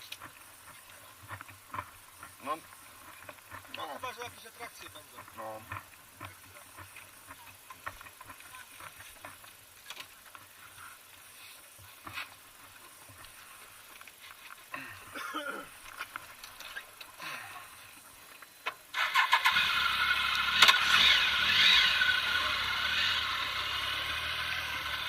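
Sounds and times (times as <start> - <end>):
motorcycle engine running: 19.0 - 25.0.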